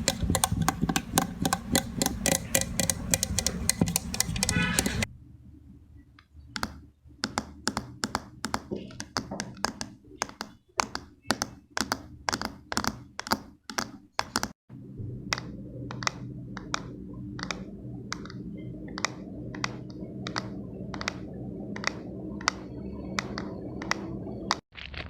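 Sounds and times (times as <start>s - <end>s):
sharp clicks: 0.0s - 5.1s, 15.3s - 21.2s
steady low hum: 14.7s - 24.6s.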